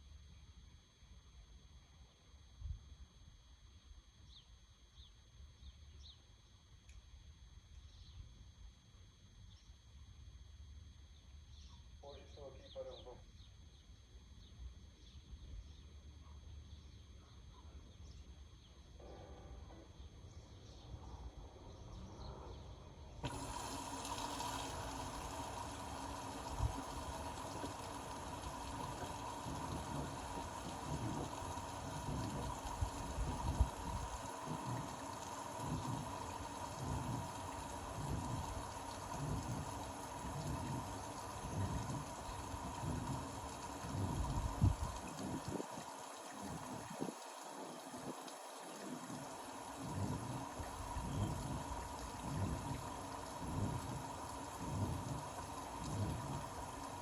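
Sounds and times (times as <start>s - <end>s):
washing machine water rushing in: 23.2s - 57.0s.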